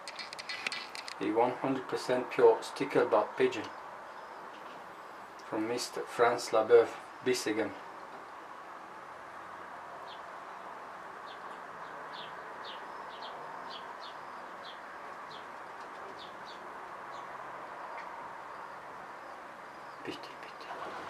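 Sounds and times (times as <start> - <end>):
small birds chirping: 2.8 - 5.9, 10.0 - 21.0.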